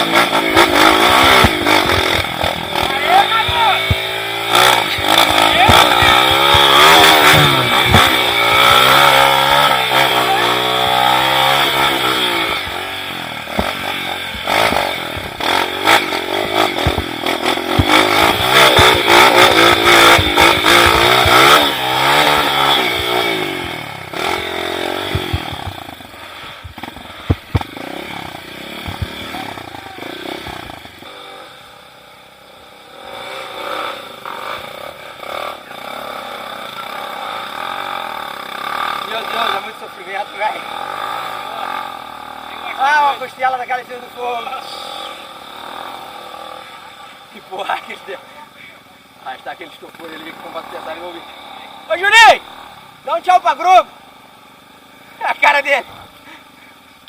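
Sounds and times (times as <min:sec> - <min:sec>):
motorcycle engine revving: 0:00.0 - 0:57.0
knocks and clatter: 0:13.5 - 0:21.6, 0:26.6 - 0:27.8.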